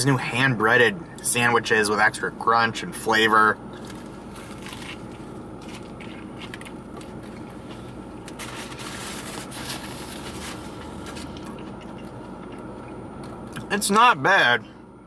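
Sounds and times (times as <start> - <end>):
steady low hum: 0.0 - 15.0
person chewing sandwich: 3.7 - 13.6
paper napkin rustling: 7.0 - 11.6.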